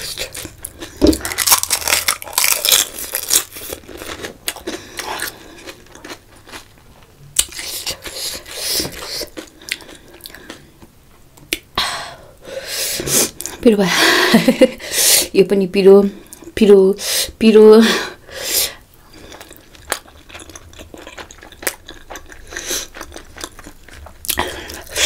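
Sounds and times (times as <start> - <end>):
wet crunchy chewing: 0.0 - 6.8, 19.1 - 25.0
crisp shell cracking when bitten: 1.1 - 3.7.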